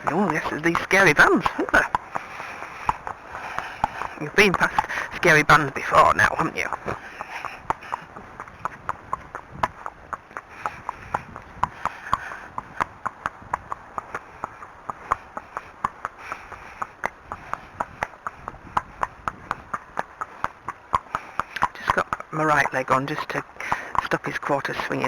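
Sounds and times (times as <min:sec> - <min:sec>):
horse hooves clip-clopping: 0:00.0 - 0:25.0.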